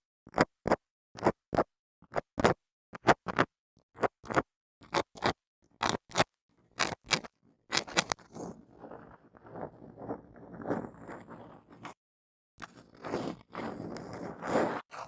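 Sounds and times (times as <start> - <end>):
object scraping a microphone: 7.7 - 12.0, 12.6 - 15.0.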